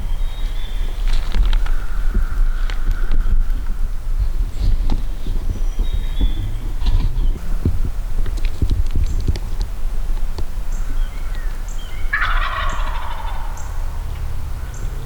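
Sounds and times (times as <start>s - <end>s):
low rumble: 0.0s - 15.0s
turkey gobbling: 11.9s - 14.9s.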